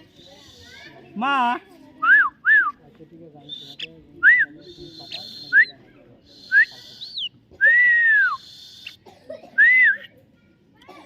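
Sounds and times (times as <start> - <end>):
myna whistling: 3.5 - 9.0.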